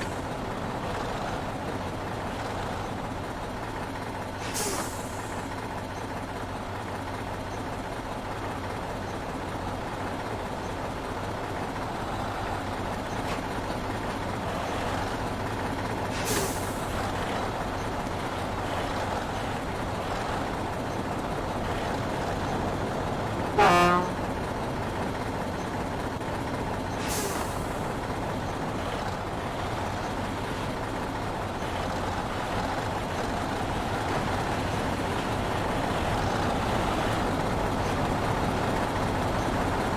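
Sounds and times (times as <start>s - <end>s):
road noise: 0.0s - 39.9s
truck engine running: 0.0s - 39.9s
air brake hisses: 4.4s - 5.4s, 16.1s - 16.9s, 27.0s - 27.8s
short horn toot: 23.6s - 24.2s.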